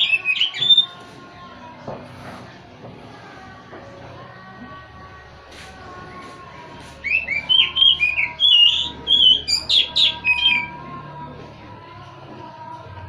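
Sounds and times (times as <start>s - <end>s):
bird singing whistled notes: 0.0s - 1.0s, 7.0s - 10.7s.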